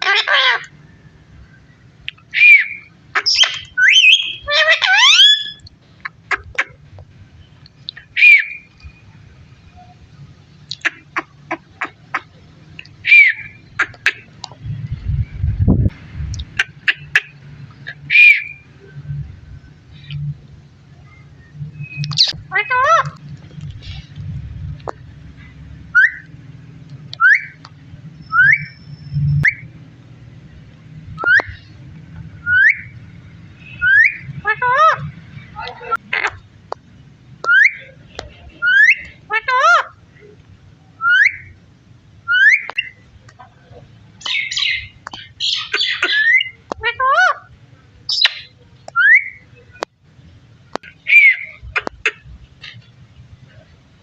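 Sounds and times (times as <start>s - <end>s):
parrot screeching: 0.0s - 0.7s, 2.3s - 5.6s, 13.0s - 13.5s, 18.1s - 18.6s, 22.2s - 23.2s, 33.8s - 35.0s, 44.3s - 47.5s
parrot whistled calls: 2.3s - 5.6s, 8.2s - 8.7s, 13.0s - 13.6s, 18.1s - 18.6s, 25.9s - 26.3s, 27.2s - 27.6s, 28.2s - 29.7s, 31.2s - 31.6s, 32.4s - 32.9s, 33.6s - 35.0s, 37.5s - 37.9s, 38.6s - 39.9s, 41.0s - 41.6s, 42.3s - 43.0s, 44.3s - 47.4s, 48.1s - 49.4s, 51.0s - 51.6s.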